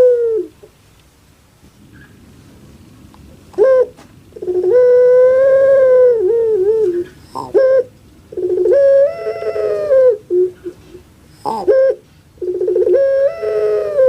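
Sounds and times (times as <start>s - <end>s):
dove calling: 0.0s - 0.7s, 3.5s - 14.0s.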